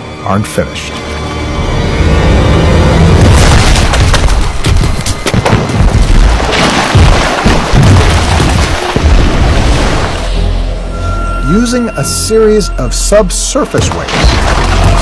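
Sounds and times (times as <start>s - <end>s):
tense background music: 0.0s - 15.0s
seawater crashing against ice: 3.3s - 10.3s, 13.8s - 15.0s.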